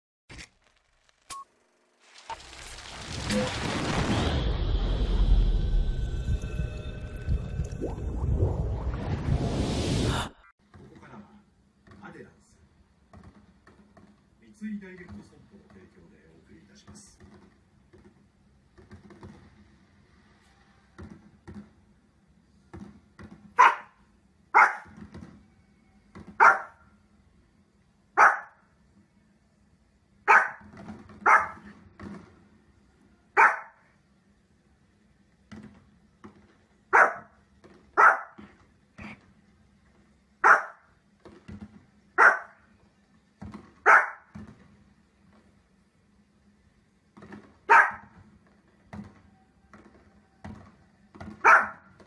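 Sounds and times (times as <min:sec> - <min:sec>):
small dog barking: 0:23.6 - 0:24.0, 0:24.6 - 0:24.9, 0:26.4 - 0:26.8, 0:28.2 - 0:28.6, 0:30.3 - 0:30.6, 0:31.2 - 0:31.7, 0:33.4 - 0:33.8, 0:36.9 - 0:37.3, 0:38.0 - 0:38.4, 0:40.4 - 0:40.9, 0:42.2 - 0:42.6, 0:43.8 - 0:44.3, 0:47.7 - 0:48.1, 0:51.4 - 0:51.9.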